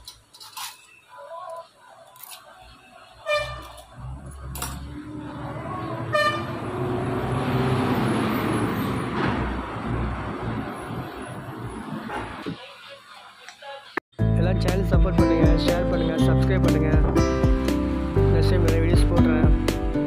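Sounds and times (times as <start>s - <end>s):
vehicle horn toots: 3.2s - 3.8s, 6.0s - 6.6s.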